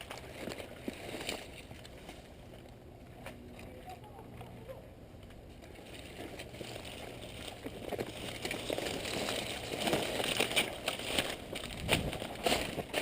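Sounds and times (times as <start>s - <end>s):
rustling and crackling: 0.0s - 13.0s
sharp crackles: 5.8s - 13.0s.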